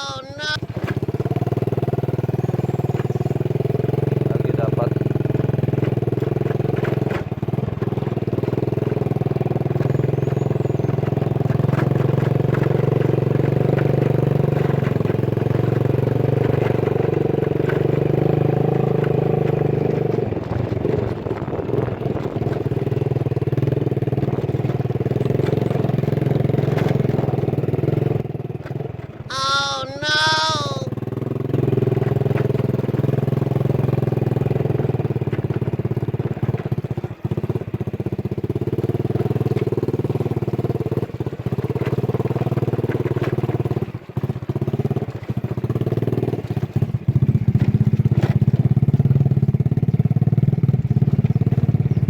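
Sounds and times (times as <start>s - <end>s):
vehicle engine cruising: 0.0s - 21.9s.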